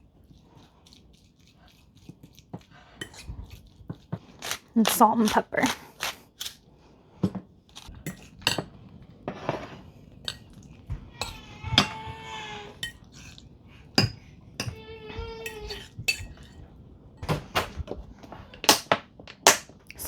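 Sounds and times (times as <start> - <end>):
metal utensil scraping a bowl: 0.6 - 6.6, 7.8 - 17.3.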